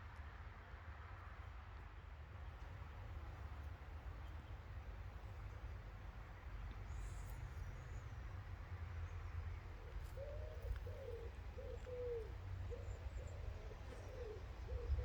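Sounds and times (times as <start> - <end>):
pigeon cooing: 10.2 - 15.0.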